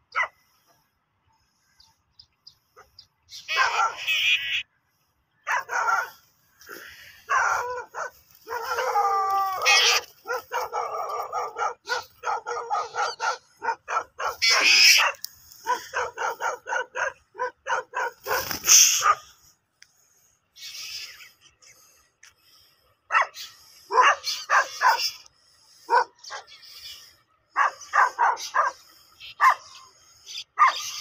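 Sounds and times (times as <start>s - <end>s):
birds giving harsh calls: 1.4s - 31.0s
rasping bird cries: 2.8s - 4.8s, 5.5s - 16.7s, 17.4s - 19.3s, 20.6s - 21.6s, 23.2s - 25.4s, 26.0s - 31.0s.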